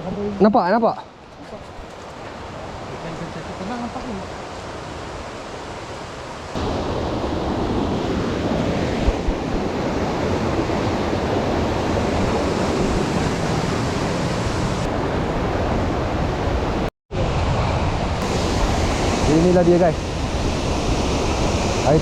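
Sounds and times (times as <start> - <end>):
waterfall rushing: 18.2 - 22.0.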